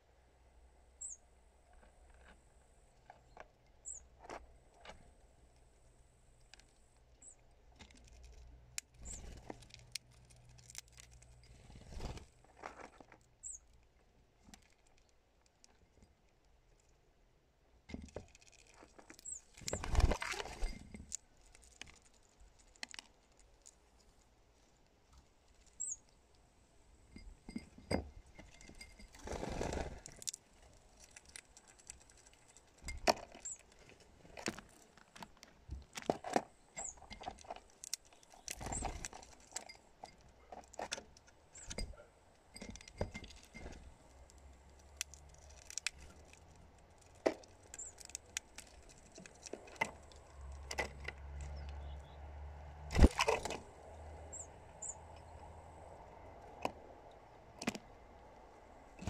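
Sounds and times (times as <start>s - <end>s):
claws and beak tapping glass: 41.5s - 43.8s.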